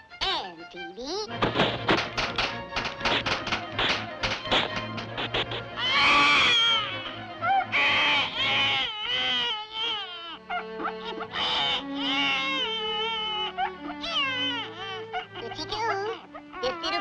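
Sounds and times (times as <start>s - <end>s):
orchestral cartoon music: 0.0s - 17.0s
cartoon baby crying: 5.8s - 17.0s.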